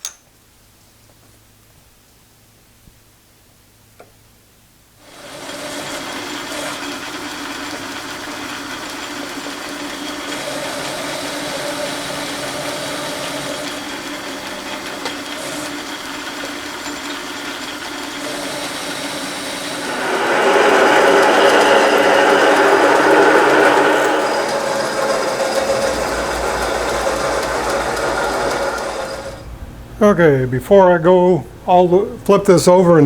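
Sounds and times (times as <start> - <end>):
metal lathe humming and whirring: 5.1 - 29.6.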